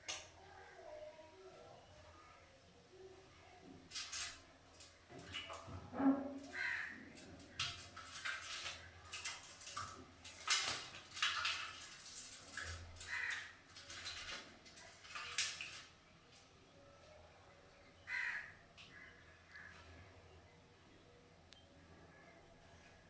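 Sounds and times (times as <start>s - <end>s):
bird splashing and fluttering: 3.6s - 16.5s.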